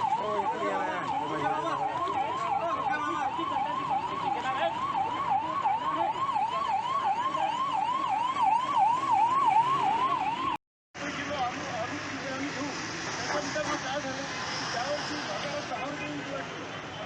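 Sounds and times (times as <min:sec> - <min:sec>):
siren yelping: 0:00.0 - 0:10.6.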